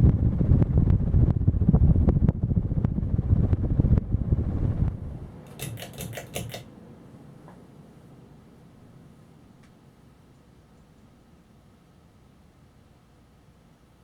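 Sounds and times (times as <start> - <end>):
fan airflow buffeting microphone: 0.0 - 14.0
ringing clicks: 5.5 - 6.7.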